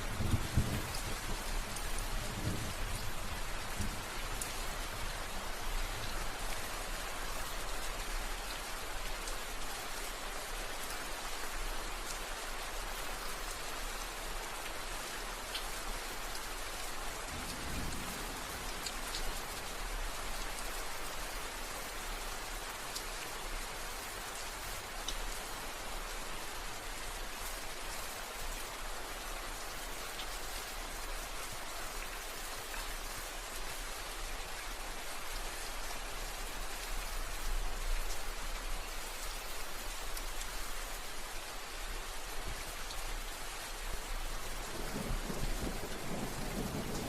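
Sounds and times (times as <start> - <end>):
heavy rain falling: 0.0 - 47.0
distant thunder rumbles: 44.7 - 47.0.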